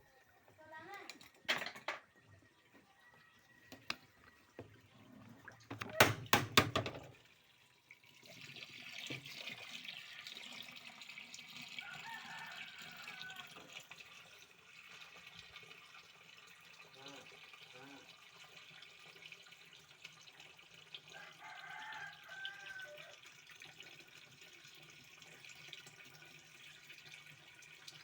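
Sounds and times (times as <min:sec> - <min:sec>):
water running: 0:00.1 - 0:28.0
clattering knocks: 0:05.7 - 0:07.1.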